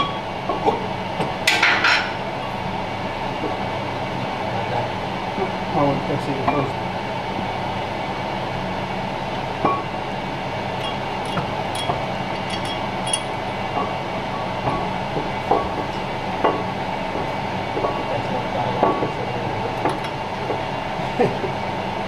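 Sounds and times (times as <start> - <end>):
mechanical hum: 0.0 - 22.0
metal tools clinking: 10.8 - 13.4.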